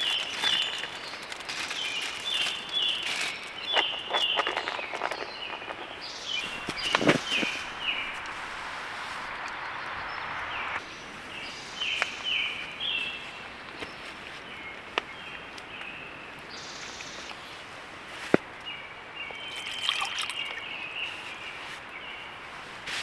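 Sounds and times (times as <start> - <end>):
campfire crackling and popping: 0.0 - 12.8
birds chirping: 0.0 - 17.9, 18.5 - 22.4.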